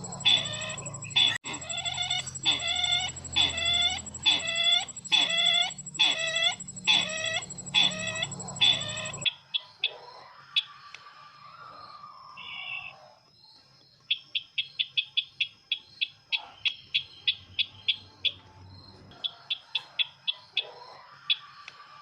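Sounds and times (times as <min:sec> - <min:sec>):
playback whine and hum: 0:00.0 - 0:09.3
recorded harsh bird call: 0:00.0 - 0:09.3
faint bird chirps: 0:00.0 - 0:09.8.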